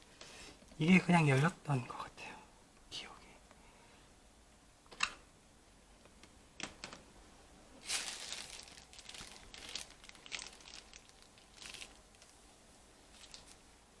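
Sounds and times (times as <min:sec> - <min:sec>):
plastic casing rustling: 0:07.8 - 0:12.4, 0:13.1 - 0:13.6.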